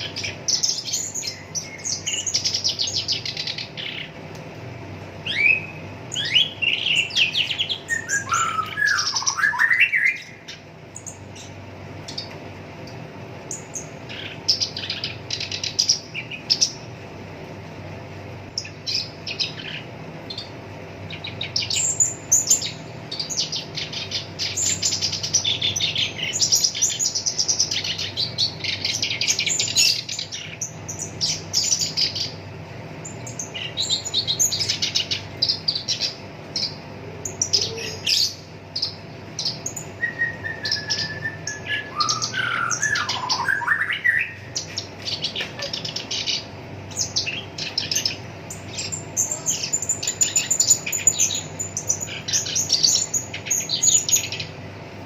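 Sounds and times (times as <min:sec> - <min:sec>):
faint steady hum: 0:00.0 - 0:55.0
warbler harsh chattering song: 0:00.0 - 0:55.0
lower whistled bird phrase: 0:05.2 - 0:10.4, 0:39.8 - 0:44.5.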